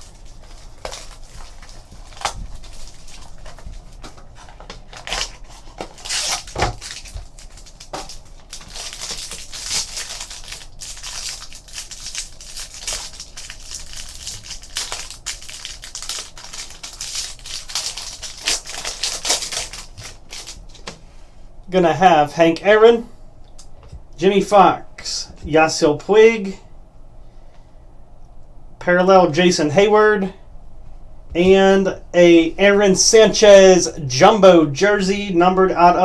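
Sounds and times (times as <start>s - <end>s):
cards sliding and rustling: 0.0s - 10.1s
wrapper tearing and crinkling: 0.0s - 20.9s.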